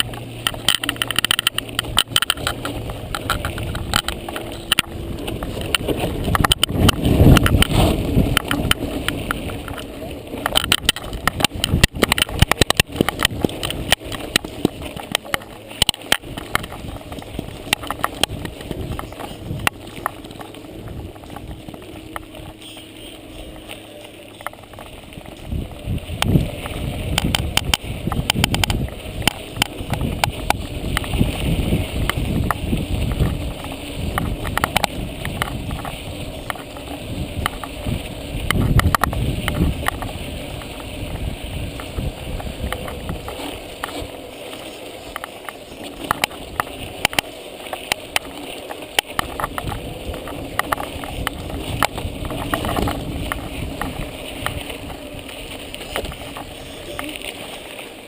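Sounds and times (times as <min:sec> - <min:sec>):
bike rattling and knocking: 0:00.0 - 0:57.5
steady rumble: 0:00.0 - 0:58.0.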